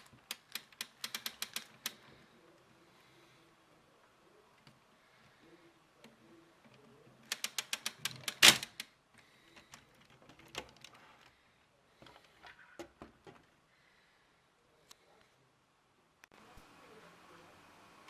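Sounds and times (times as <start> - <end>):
plastic mechanism clicking: 0.0 - 2.0, 6.0 - 8.9
plastic parts rattling: 0.0 - 2.2, 6.6 - 8.9, 9.5 - 11.3.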